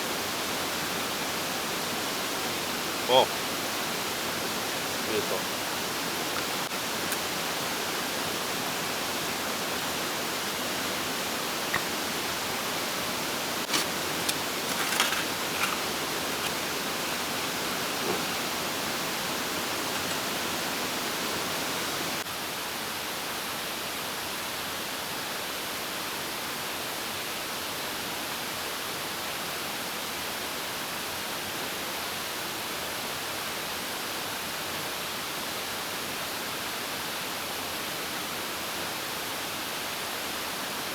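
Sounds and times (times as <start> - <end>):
stream flowing over rocks: 0.0 - 22.6.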